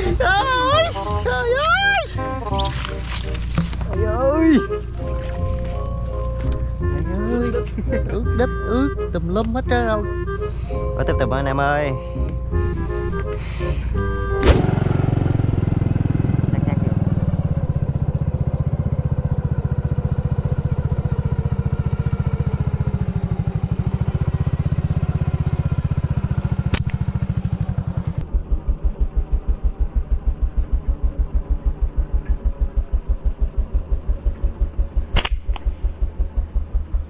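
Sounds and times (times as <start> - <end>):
motorbike engine running: 0.0 - 10.4, 12.7 - 37.0
sharp snaps: 26.6 - 27.2, 35.0 - 35.8.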